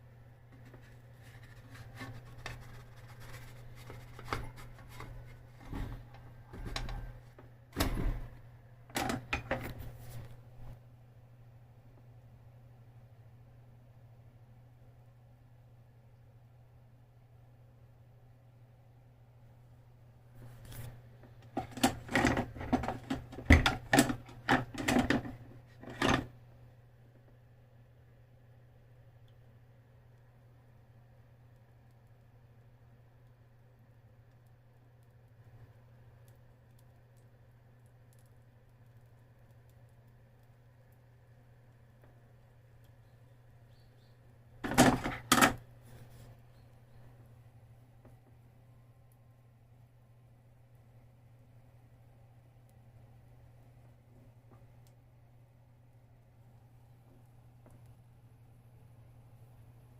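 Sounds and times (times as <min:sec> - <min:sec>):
steady low hum: 0:00.0 - 0:59.9
sharp kitchen clicks and knocks: 0:44.6 - 0:45.6.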